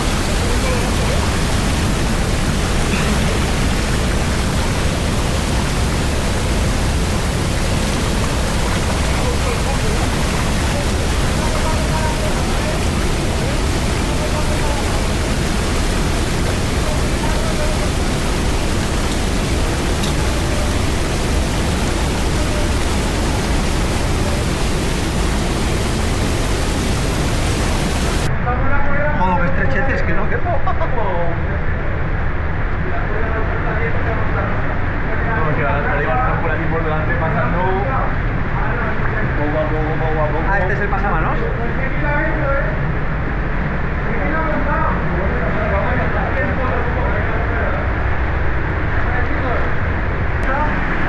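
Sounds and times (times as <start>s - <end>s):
rushing water roar: 0.0s - 28.4s, 31.4s - 51.0s.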